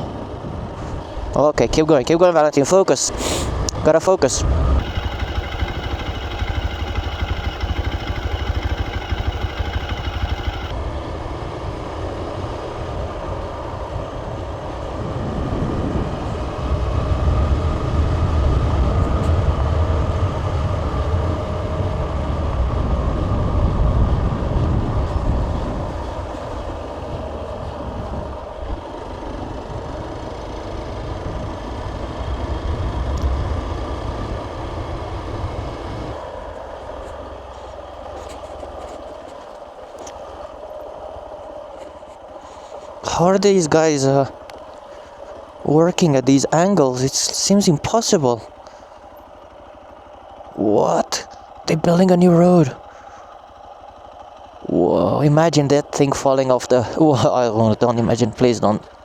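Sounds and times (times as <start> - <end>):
motorcycle engine rumble: 3.2 - 10.8.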